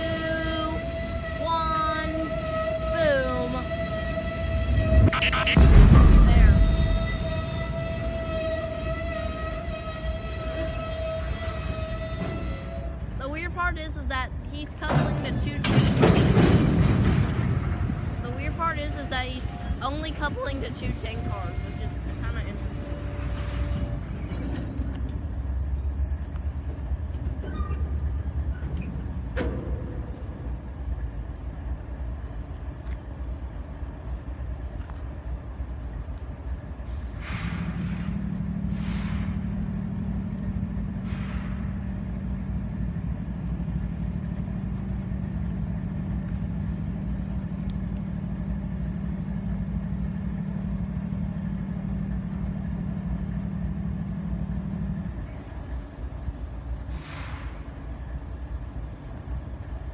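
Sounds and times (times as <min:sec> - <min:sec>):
air brakes hissing: 0:00.0 - 0:13.0, 0:36.8 - 0:40.2, 0:40.8 - 0:42.3, 0:56.7 - 0:57.9
diesel locomotive engine drone: 0:00.0 - 0:59.9.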